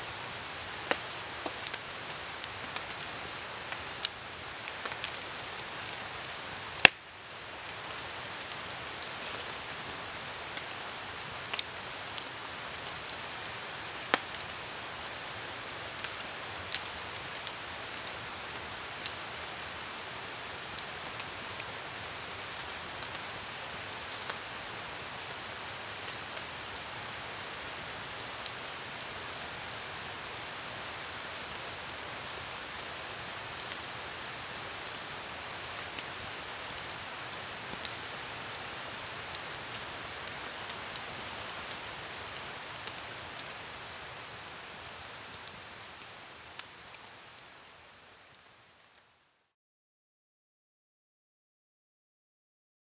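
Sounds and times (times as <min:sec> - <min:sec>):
rain falling in forest: 0:00.0 - 0:49.6
campfire crackling and popping: 0:00.3 - 0:47.3.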